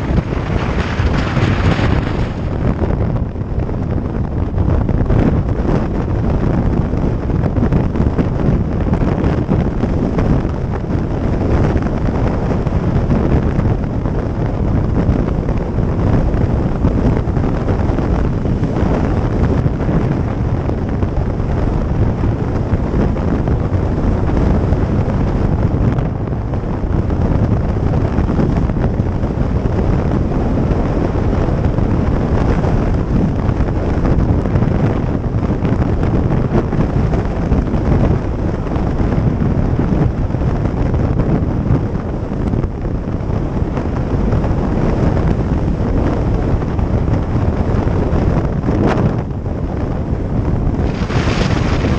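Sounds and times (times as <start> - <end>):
motorcycle engine: 0.0 - 4.3
road noise: 0.0 - 51.9
wind buffeting microphone: 0.0 - 51.9.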